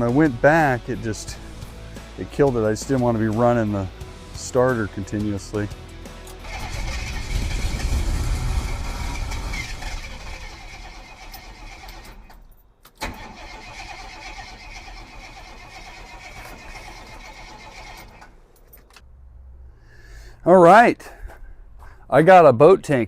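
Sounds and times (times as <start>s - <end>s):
starter motor cranking engine: 6.4s - 12.4s, 13.0s - 18.4s.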